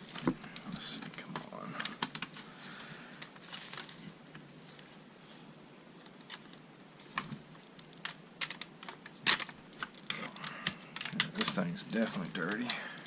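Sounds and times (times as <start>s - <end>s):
plastic clicks and scrapes: 6.2s - 13.0s.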